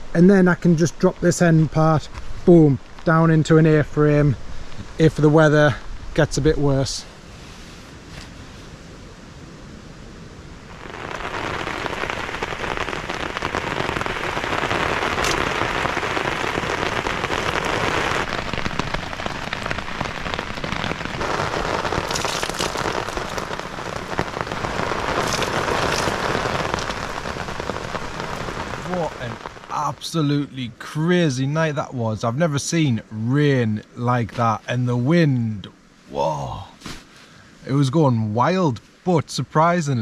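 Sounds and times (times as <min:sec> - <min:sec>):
heavy rain on a tarp: 0:10.7 - 0:30.4, 0:36.1 - 0:37.2
sharp raindrop hits: 0:10.7 - 0:30.4.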